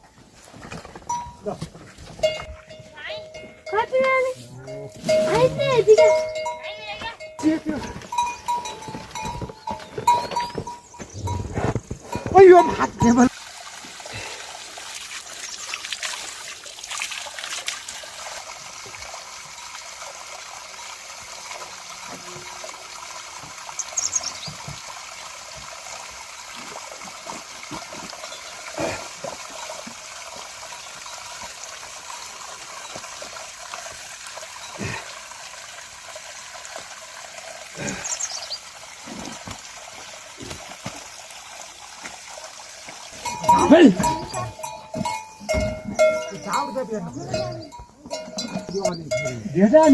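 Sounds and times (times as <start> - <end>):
running water trickling: 0.0 - 49.9.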